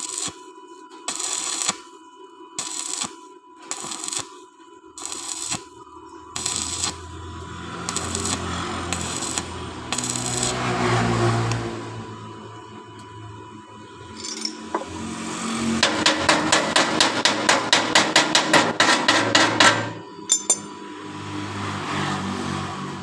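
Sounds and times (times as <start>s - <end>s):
chipping hammer striking metal: 15.8s - 20.7s.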